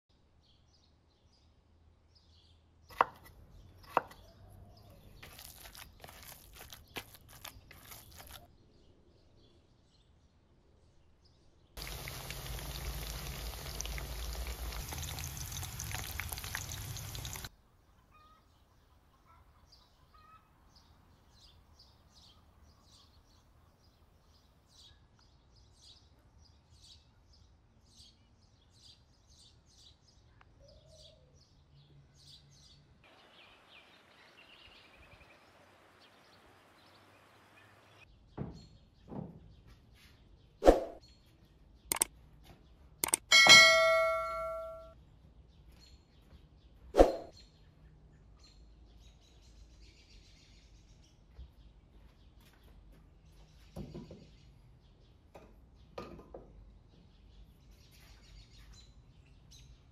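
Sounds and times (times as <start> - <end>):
cutlets sizzling in hot oil: 11.8 - 17.5
faint bird chirps: 17.7 - 21.5.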